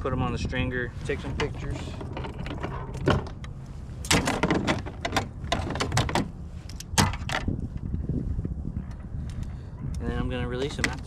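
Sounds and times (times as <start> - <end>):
low rumble: 0.0 - 11.0
gear clacking and scraping: 1.0 - 7.5.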